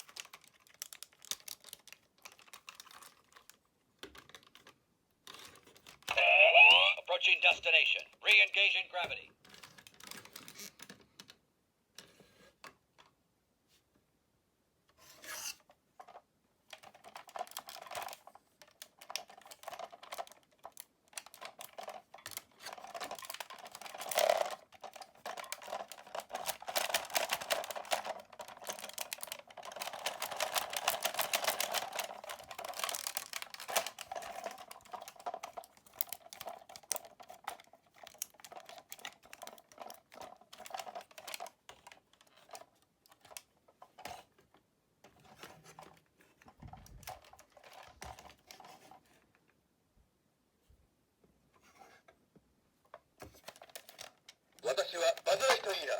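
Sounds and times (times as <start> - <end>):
plastic toy parts clicking: 16.7 - 44.2.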